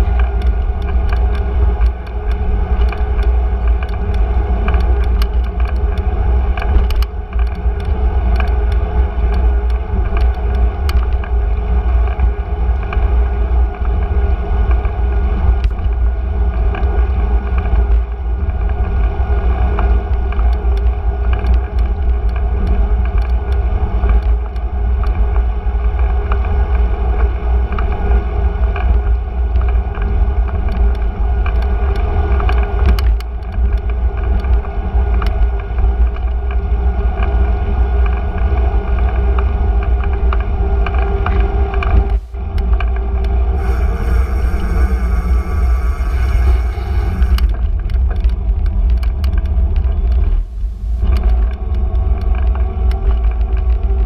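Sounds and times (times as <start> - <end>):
low street rumble: 0.0 - 54.0
passing vehicles: 25.3 - 54.0
high-pitched sound: 43.6 - 47.4.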